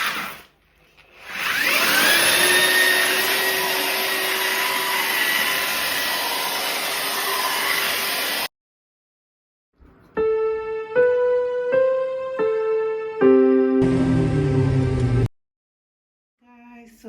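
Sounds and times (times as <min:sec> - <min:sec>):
electric motor whining: 0:01.2 - 0:08.5.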